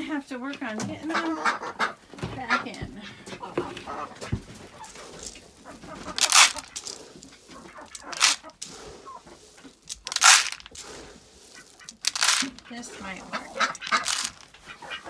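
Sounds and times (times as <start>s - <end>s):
chickens clucking: 0.0s - 15.0s
loud scuffing noises: 0.7s - 7.5s.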